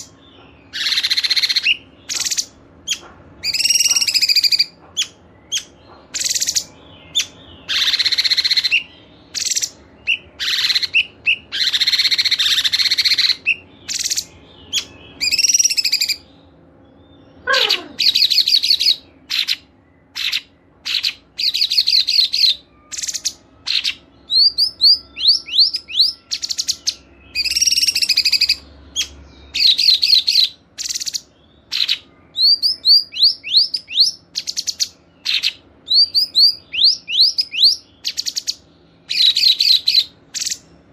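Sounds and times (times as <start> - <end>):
songbirds singing chirps and trills: 0.0 - 40.9.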